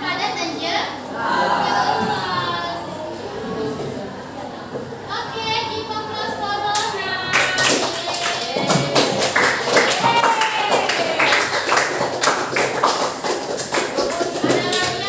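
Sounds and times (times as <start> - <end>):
sharp percussive claps: 6.7 - 15.0.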